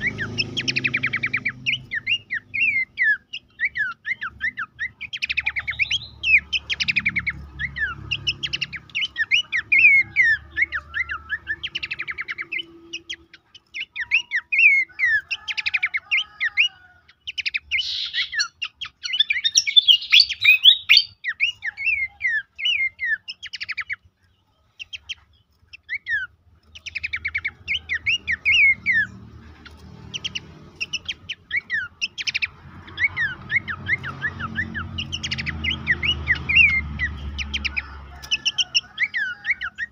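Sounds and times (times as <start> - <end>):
bird chirps and whistles: 0.0 - 15.6, 17.4 - 23.9.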